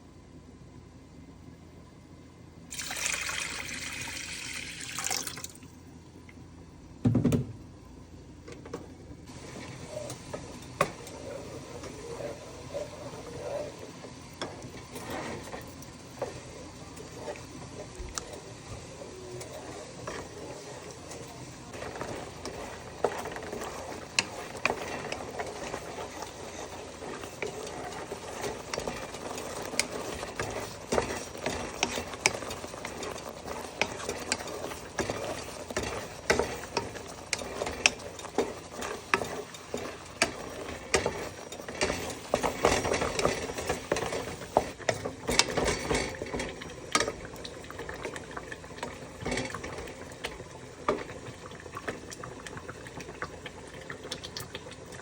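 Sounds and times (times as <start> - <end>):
spoon stirring in pot: 8.6 - 55.0
spoon scraping pot: 9.3 - 48.2.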